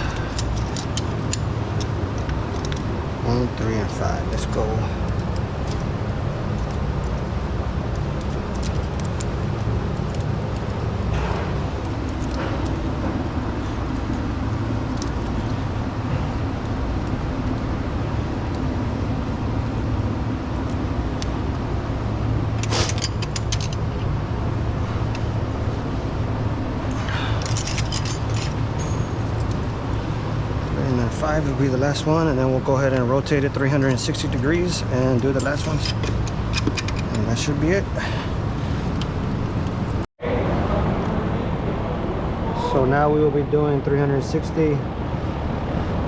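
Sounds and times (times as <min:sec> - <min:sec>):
wrench clinking on metal: 0:00.0 - 0:02.9, 0:22.6 - 0:23.8, 0:27.1 - 0:29.7, 0:33.6 - 0:37.6
steady low rumble: 0:00.0 - 0:46.0.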